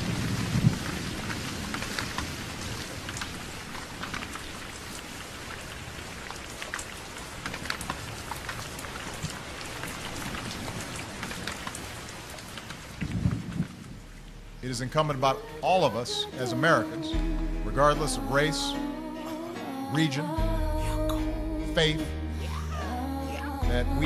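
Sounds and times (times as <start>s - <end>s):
raindrops striking close by: 0.0s - 18.9s
steady rain falling: 0.0s - 24.0s
low rumble: 17.2s - 19.3s, 20.4s - 24.0s.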